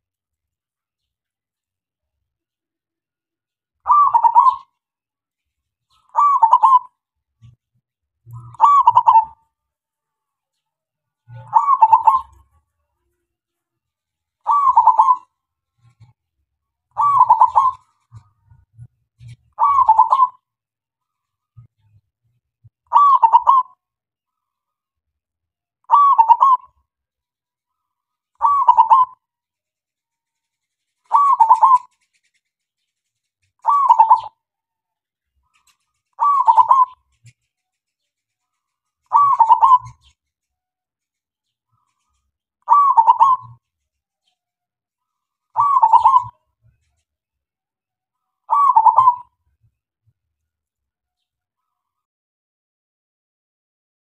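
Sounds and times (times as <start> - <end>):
dove cooing: 3.9 - 4.7, 6.1 - 7.6, 8.4 - 9.4, 11.3 - 12.5, 14.5 - 16.1, 17.0 - 18.6, 19.2 - 20.4, 22.9 - 23.8, 25.9 - 26.8, 28.4 - 29.2, 31.1 - 32.0, 33.6 - 34.4, 35.6 - 37.4, 39.1 - 40.2, 42.7 - 43.6, 45.5 - 46.4, 48.5 - 49.3.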